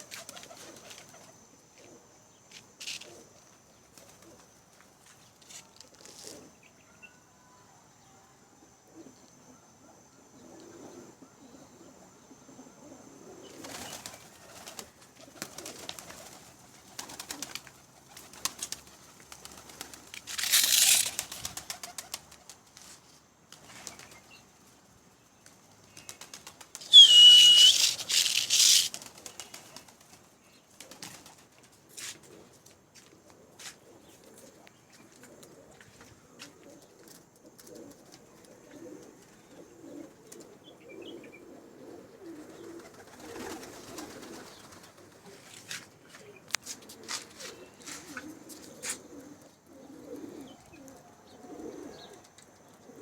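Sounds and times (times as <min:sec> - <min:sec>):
pigeons flapping wings: 0:00.0 - 0:01.4, 0:13.6 - 0:22.8, 0:23.5 - 0:24.3, 0:25.4 - 0:32.4, 0:42.4 - 0:46.0
pigeon cooing: 0:08.9 - 0:18.7, 0:26.8 - 0:29.8, 0:33.4 - 0:53.0
short high squeak: 0:26.8 - 0:28.9.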